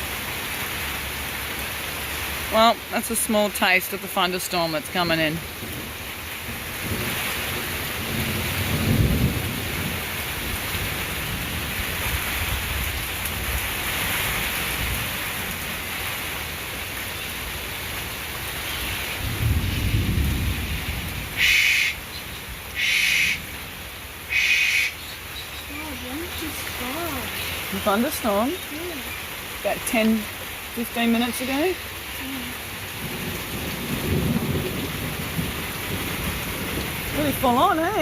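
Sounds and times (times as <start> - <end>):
steady rain: 0.0 - 38.0
thunder rumbling: 5.2 - 16.0, 19.0 - 24.4, 32.7 - 38.0.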